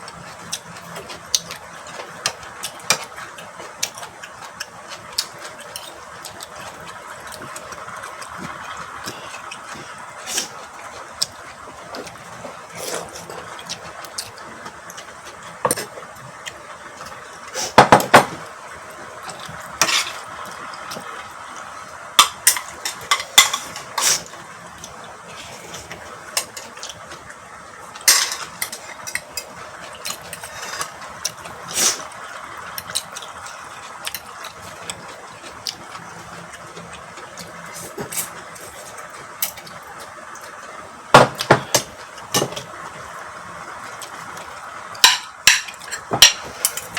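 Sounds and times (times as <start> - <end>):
utensils clinking on plates: 19.8 - 20.3, 22.2 - 24.4, 28.0 - 31.4, 45.0 - 46.9.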